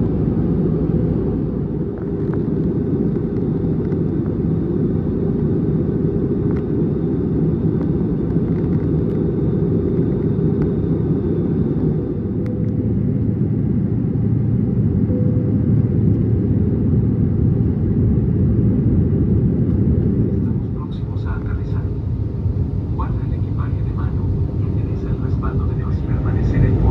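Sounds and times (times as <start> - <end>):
airplane cabin engine rumble: 0.0 - 26.9.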